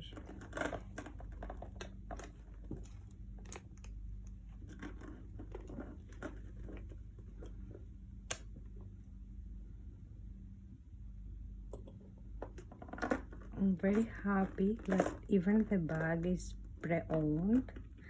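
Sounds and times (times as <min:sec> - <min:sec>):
handbag rustling and tapping: 0:00.0 - 0:07.9, 0:11.8 - 0:18.0
low steady hum: 0:00.0 - 0:18.0.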